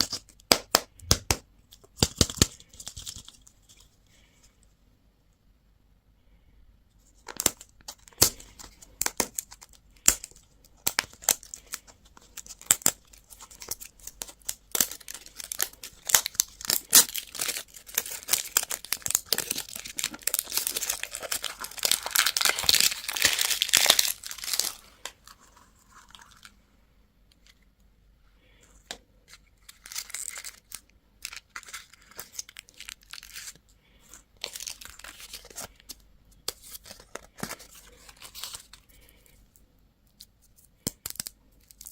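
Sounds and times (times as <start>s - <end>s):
wrappers crinkling and tearing: 7.4s - 26.5s, 29.3s - 39.1s.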